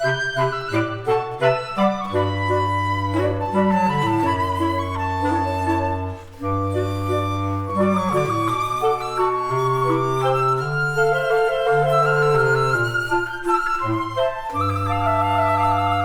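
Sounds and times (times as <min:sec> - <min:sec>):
woodwind quintet playing a waltz: 0:00.0 - 0:16.0.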